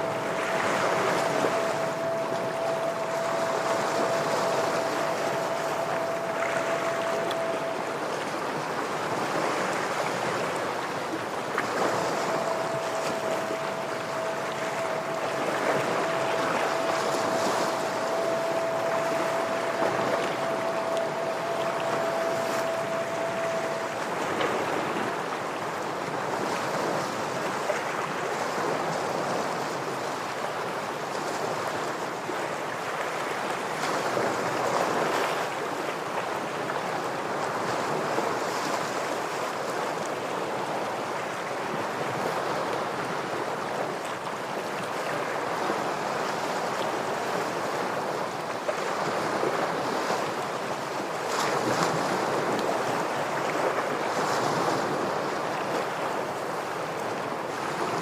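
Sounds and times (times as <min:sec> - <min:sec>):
ocean waves washing on rocks: 0:00.0 - 0:58.0.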